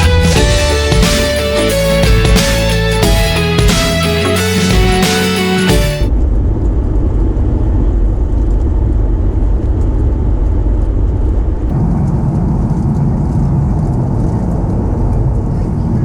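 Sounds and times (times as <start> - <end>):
background music: 0.0 - 6.1
aircraft cabin engine rumble: 6.2 - 16.0.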